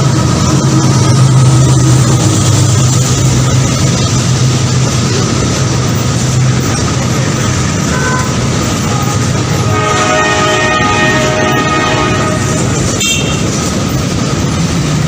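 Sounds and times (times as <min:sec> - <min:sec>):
train rumbling on tracks: 0:00.0 - 0:15.0.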